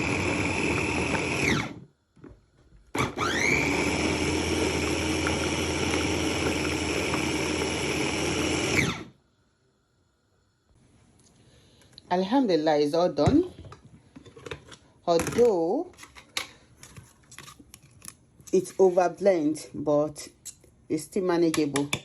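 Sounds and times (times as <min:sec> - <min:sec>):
food chopper motor whirring: 0:00.0 - 0:01.9, 0:03.0 - 0:09.2.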